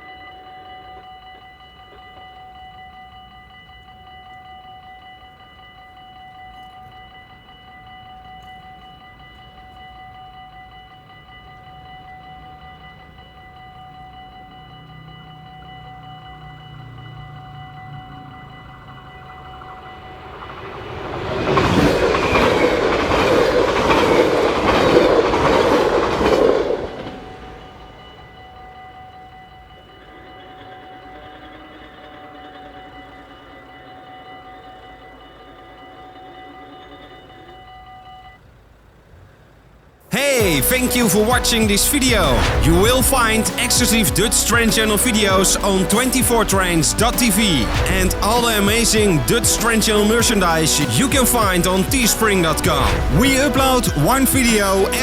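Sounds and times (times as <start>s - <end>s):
level-crossing warning bell ringing: 0.0s - 55.0s
train wheels clattering over rails: 14.2s - 37.5s, 40.4s - 55.0s.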